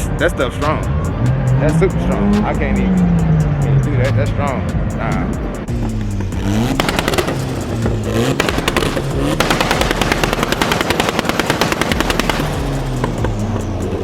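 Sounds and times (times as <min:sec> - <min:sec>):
car engine revving: 0:00.0 - 0:14.0
exhaust crackling pops: 0:05.7 - 0:13.7.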